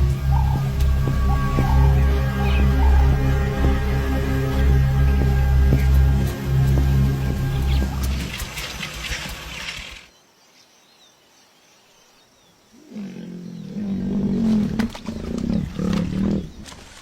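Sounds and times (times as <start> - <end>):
lion growling: 12.8 - 16.9.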